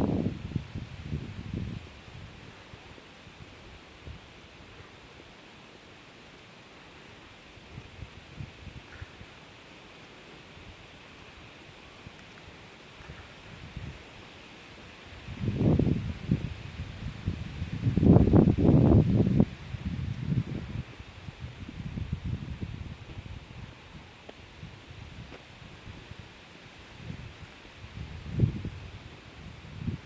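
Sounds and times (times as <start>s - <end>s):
crickets chirring: 0.0s - 30.0s.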